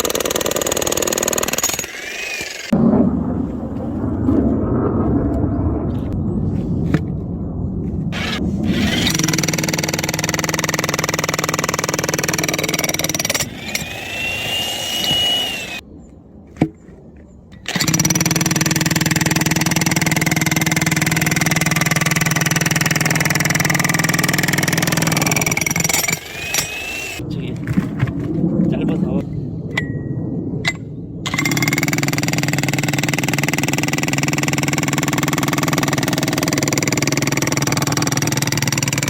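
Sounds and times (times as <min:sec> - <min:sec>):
electric hammer drill hammering log: 0:00.0 - 0:02.8, 0:08.2 - 0:15.8, 0:17.7 - 0:27.2, 0:31.3 - 0:39.0.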